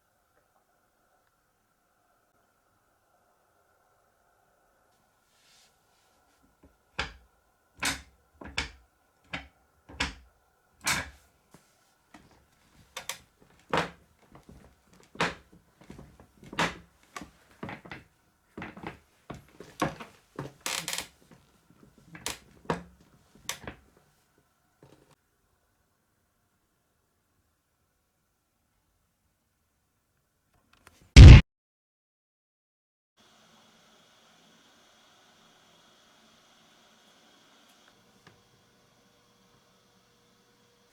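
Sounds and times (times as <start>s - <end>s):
office chair creaking: 7.8s - 10.2s, 10.8s - 11.2s, 12.2s - 23.8s.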